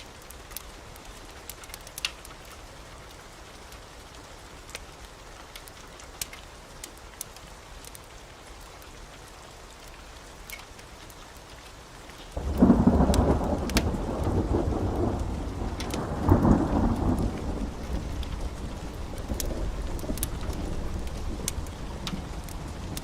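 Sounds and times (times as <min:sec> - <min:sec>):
steady rain: 0:00.0 - 0:23.0
thunder rolling: 0:12.4 - 0:23.0.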